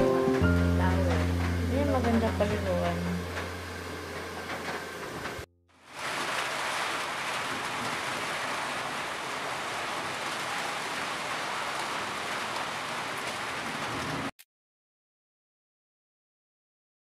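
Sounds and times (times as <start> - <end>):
steady rain falling: 5.8 - 14.3.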